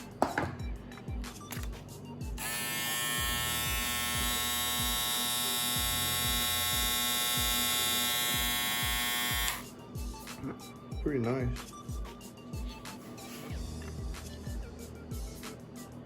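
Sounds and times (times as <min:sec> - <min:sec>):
electric shaver buzzing: 0:02.3 - 0:09.7.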